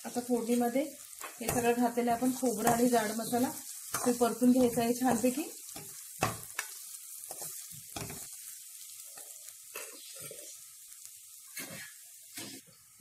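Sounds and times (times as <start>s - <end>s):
food sizzling in hot oil: 0.0s - 13.0s
spatula scraping pan: 0.4s - 8.3s, 11.5s - 12.7s.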